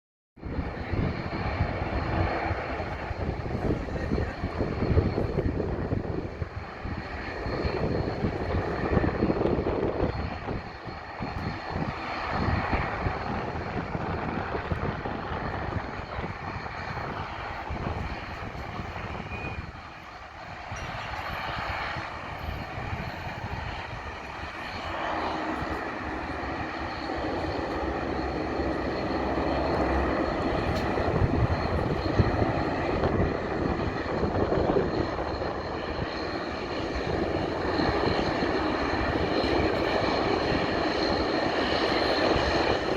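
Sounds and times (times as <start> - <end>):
turboprop engines whining: 0.4 - 42.9.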